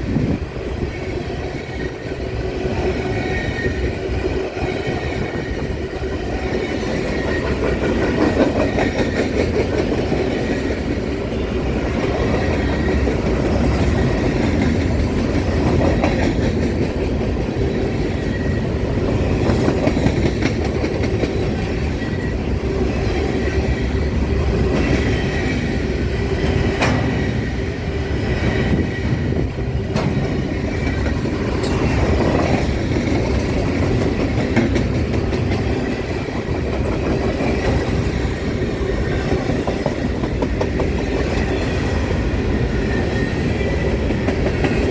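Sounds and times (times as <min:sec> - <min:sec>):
train wheels rumbling on rails: 0:00.0 - 0:44.9
wheels clicking over rail joints: 0:29.9 - 0:42.0.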